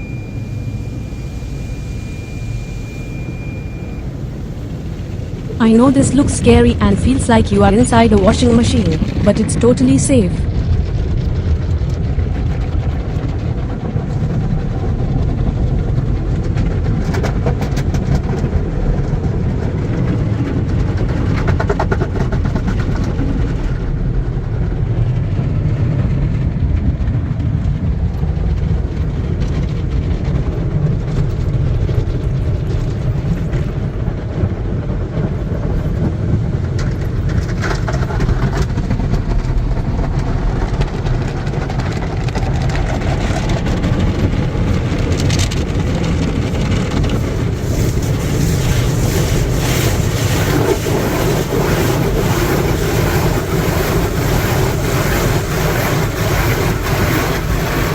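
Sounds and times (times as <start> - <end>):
car wash machines rumbling: 0.0 - 7.2, 10.4 - 57.9
water beating on car: 36.1 - 57.9.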